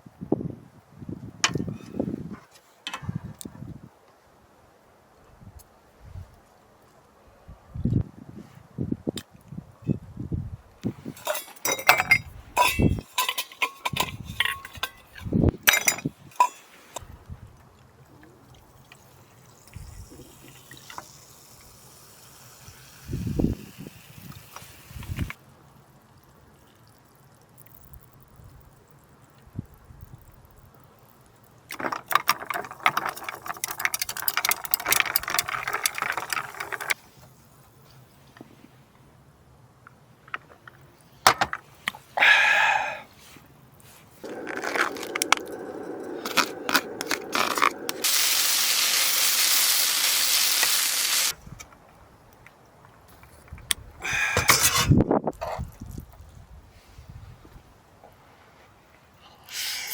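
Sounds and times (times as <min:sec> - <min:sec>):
dishes and utensils clinking: 0:11.0 - 0:16.8
rapid rattling and clicking: 0:31.7 - 0:37.0.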